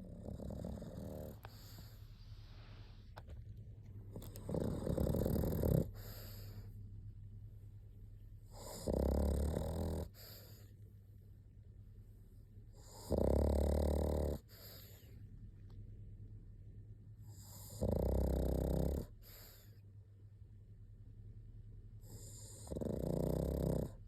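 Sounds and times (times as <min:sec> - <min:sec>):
dog snoring: 0:00.0 - 0:02.0, 0:04.1 - 0:06.7, 0:08.5 - 0:10.7, 0:12.7 - 0:15.2, 0:17.2 - 0:19.8, 0:22.0 - 0:24.0
dog breathing: 0:00.0 - 0:03.2, 0:04.2 - 0:06.8, 0:08.5 - 0:10.7, 0:12.8 - 0:15.2, 0:22.0 - 0:24.0.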